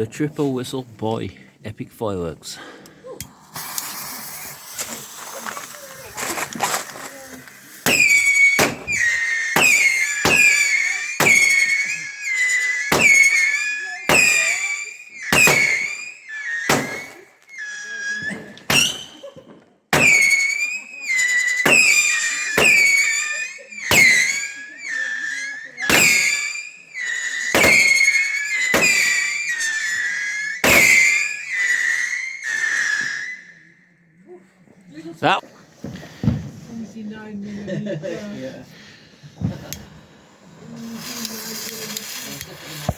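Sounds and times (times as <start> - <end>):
firework crack: 3.1 - 33.4, 40.6 - 42.9
shrill firework whistle: 3.6 - 33.9, 40.8 - 42.9.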